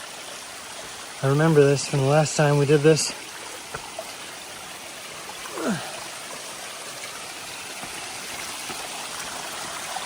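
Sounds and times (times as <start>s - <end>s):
stream water rushing: 0.0s - 10.0s.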